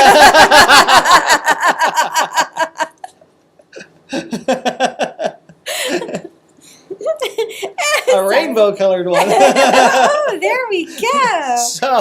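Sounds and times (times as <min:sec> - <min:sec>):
people laughing: 0:00.0 - 0:03.2, 0:09.2 - 0:10.4.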